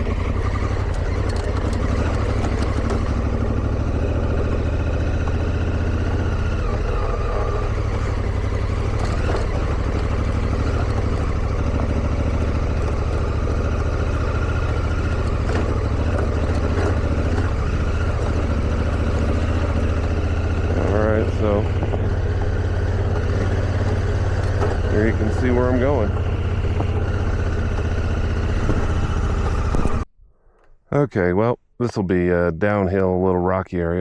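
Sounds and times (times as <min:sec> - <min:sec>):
motorcycle knocking over bumps: 0:00.0 - 0:30.0
motorcycle engine running: 0:00.0 - 0:30.1.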